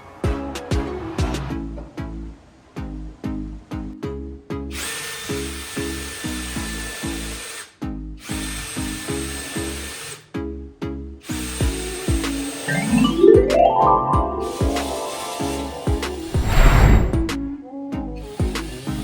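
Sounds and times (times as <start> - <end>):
rhythmic background music: 12.6 - 16.4.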